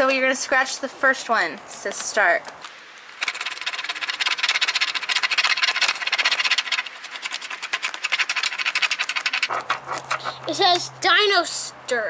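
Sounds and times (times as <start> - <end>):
scratching at scratch-off card: 3.2 - 11.0.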